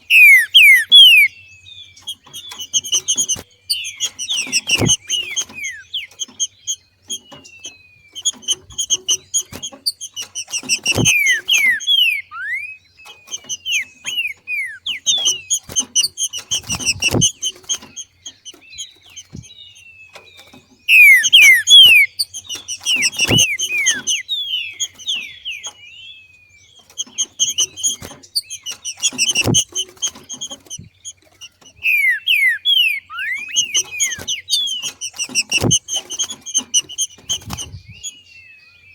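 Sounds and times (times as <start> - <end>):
bird chattering and whistling: 0.0 - 38.9
dull thump: 4.5 - 5.5, 15.7 - 17.8, 29.0 - 30.8.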